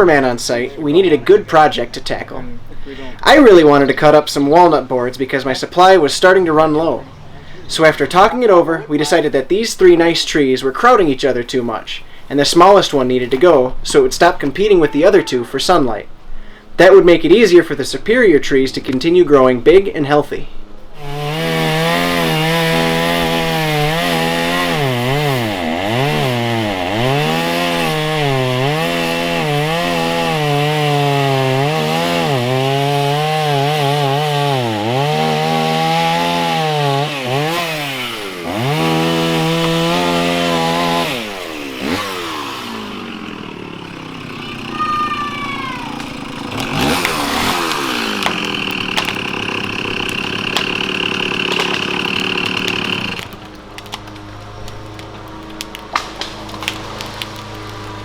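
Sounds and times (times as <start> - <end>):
chainsaw engine cutting wood: 21.0 - 58.0
falling tree squeaks: 37.5 - 54.1
wood knocks and cracks: 46.0 - 49.3, 50.0 - 50.8, 51.4 - 57.8.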